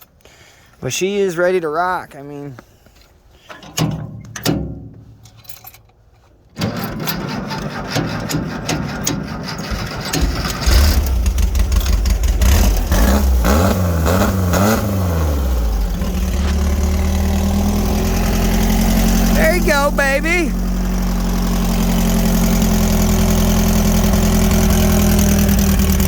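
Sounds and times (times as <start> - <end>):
engine cold-starting and idling: 6.5 - 26.0.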